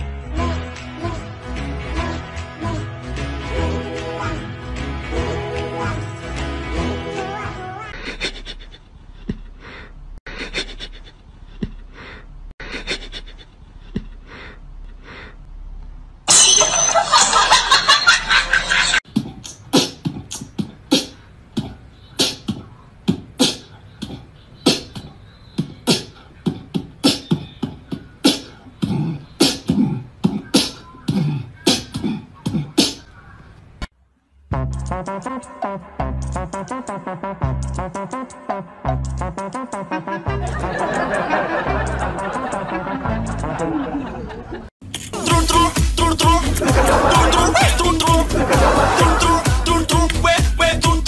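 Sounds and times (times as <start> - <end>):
music: 0.0 - 7.9, 34.5 - 43.6, 45.2 - 51.0
beatbox clicks and pops: 19.2 - 23.6, 34.6 - 35.0.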